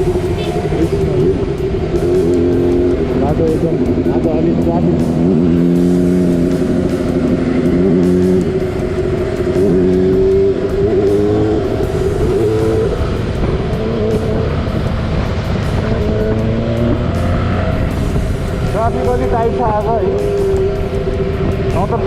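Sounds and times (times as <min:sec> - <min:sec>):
motorcycle engine shifting gears: 0:00.0 - 0:22.0
wind noise on microphone: 0:06.2 - 0:22.0.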